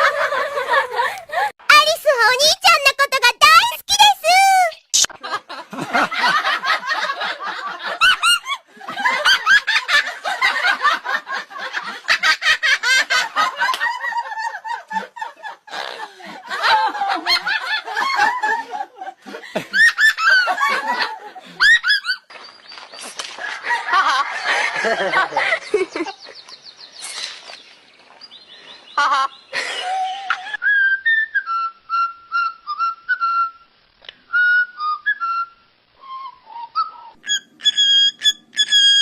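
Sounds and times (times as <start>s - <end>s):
parrot imitating laughter: 7.8s - 10.9s, 15.4s - 18.4s, 29.0s - 30.4s, 36.7s - 39.0s.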